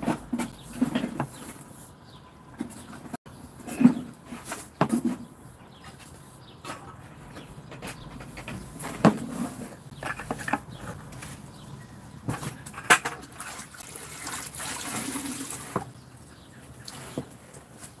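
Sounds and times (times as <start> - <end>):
water splashing and running: 13.1 - 16.0.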